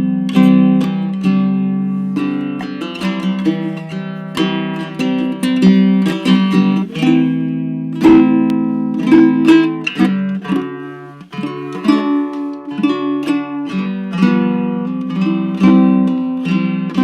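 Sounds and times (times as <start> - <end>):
ukulele plucked chords: 0.0 - 17.0.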